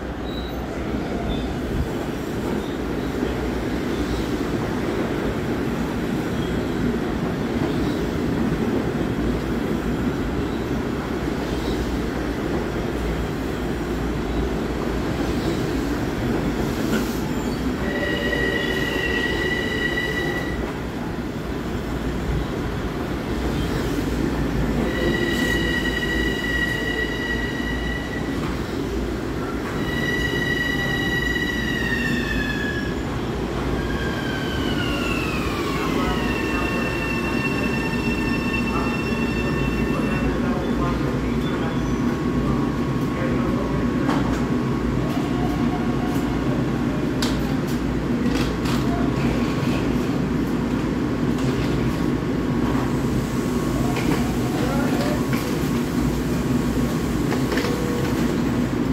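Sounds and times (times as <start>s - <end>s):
train rolling rumble: 0.0s - 58.9s
high-pitched train squeal: 16.9s - 20.7s, 24.7s - 28.6s, 29.4s - 33.2s, 33.8s - 42.2s.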